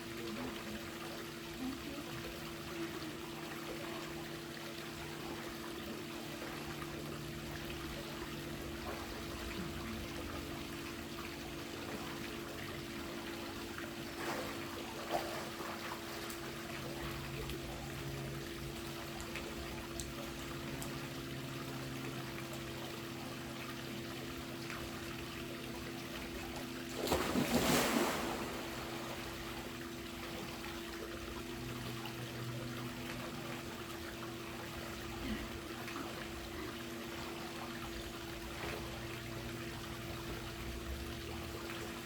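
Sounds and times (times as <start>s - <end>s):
pool water trickling and lapping: 0.0s - 42.0s
steady low hum: 0.0s - 42.0s
water splash: 26.9s - 29.4s.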